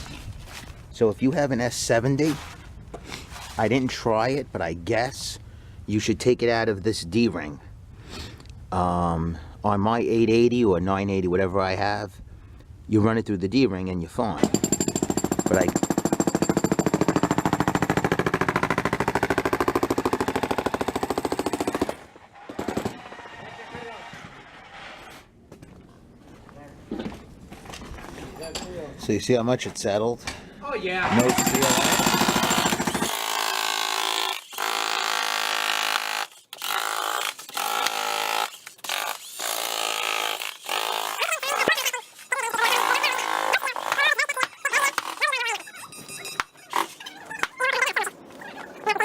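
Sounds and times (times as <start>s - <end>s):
concrete breaker hammering: 14.4s - 23.2s, 31.1s - 36.2s.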